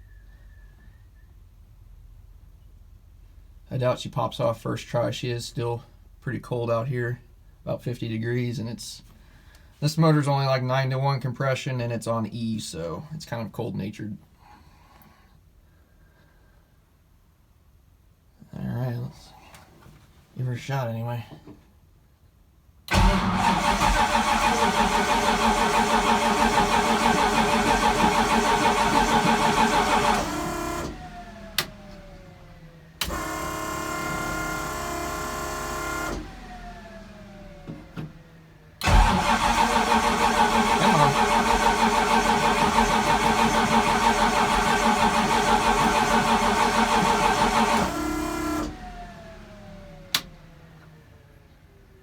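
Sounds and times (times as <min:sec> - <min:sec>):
car starter cranking engine: 0:22.9 - 0:51.0.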